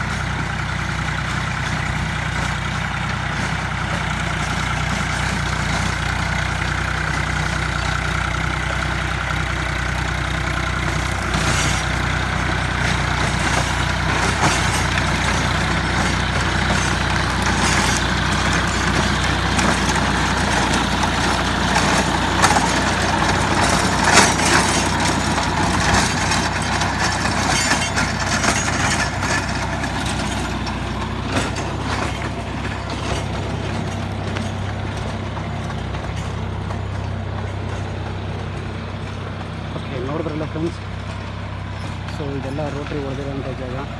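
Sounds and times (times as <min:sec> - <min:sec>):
rotary tiller churning: 0:00.0 - 0:43.9
tractor diesel engine running: 0:00.0 - 0:43.9
sharp knocks and crackles: 0:10.8 - 0:39.6.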